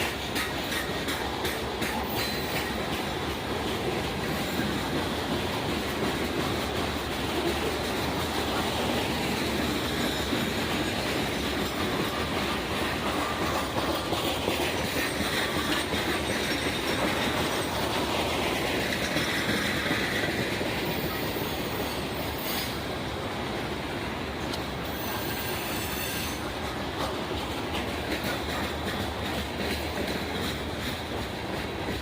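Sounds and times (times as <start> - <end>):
train wheels clattering on rails: 0.0 - 32.0
high wheel squeal: 9.4 - 13.6, 20.8 - 22.9, 24.8 - 26.6.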